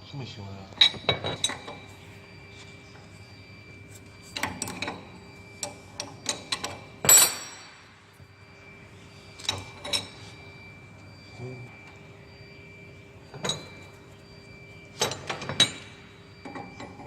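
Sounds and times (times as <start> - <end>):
faint machine whine: 0.0 - 17.0
ringing metal clink: 5.6 - 7.8.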